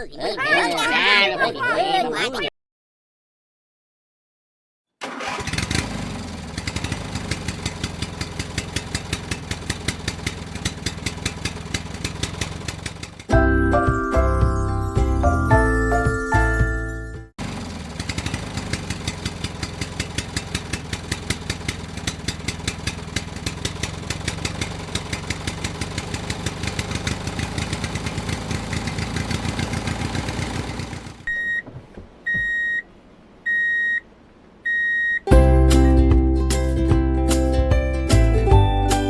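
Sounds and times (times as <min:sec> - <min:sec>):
small tractor engine running: 0:05.0 - 0:13.3, 0:17.4 - 0:31.5
short high beeps: 0:31.3 - 0:31.6, 0:32.3 - 0:32.8, 0:33.5 - 0:34.0, 0:34.7 - 0:35.3.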